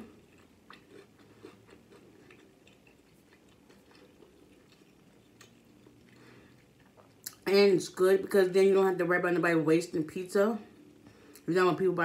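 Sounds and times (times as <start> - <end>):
chewing with mouth clicks: 0.0 - 7.4
low steady hum: 0.0 - 12.0.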